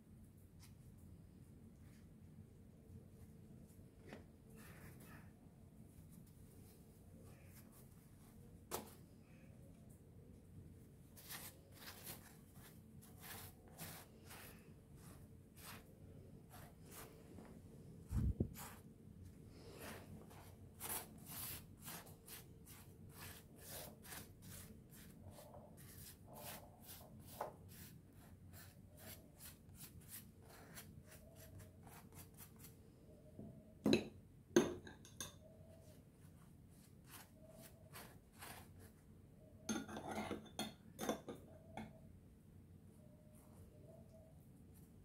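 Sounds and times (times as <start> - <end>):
rubbing and scraping strokes: 11.2 - 18.9, 19.5 - 32.7.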